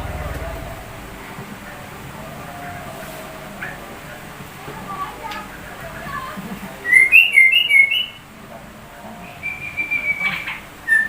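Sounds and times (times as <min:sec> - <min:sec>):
bird singing whistled notes: 0:06.8 - 0:08.2, 0:09.2 - 0:11.0.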